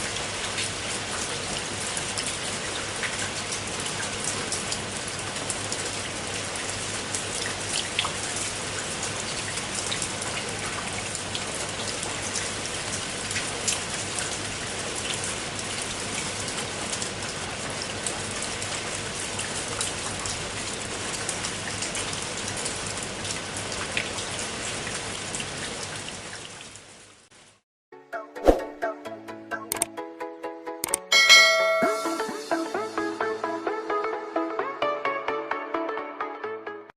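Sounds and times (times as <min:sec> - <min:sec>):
bell-like chime: 0:31.1 - 0:32.7.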